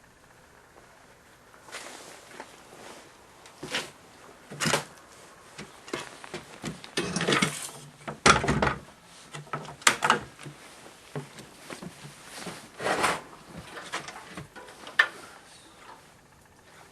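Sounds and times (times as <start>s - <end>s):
clunks and scrapes of tools: 3.6s - 16.2s.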